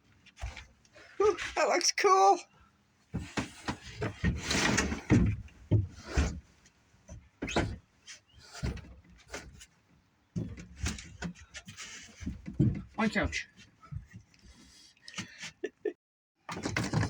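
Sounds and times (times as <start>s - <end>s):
wood knocking and scraping: 10.4s - 13.0s.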